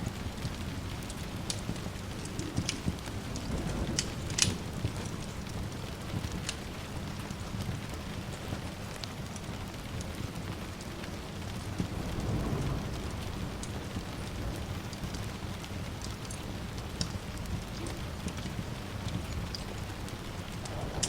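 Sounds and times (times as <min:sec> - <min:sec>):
small crackles: 0:00.0 - 0:21.0
steady rain: 0:00.0 - 0:21.0
distant thunder rumble: 0:00.2 - 0:08.2, 0:11.2 - 0:21.0.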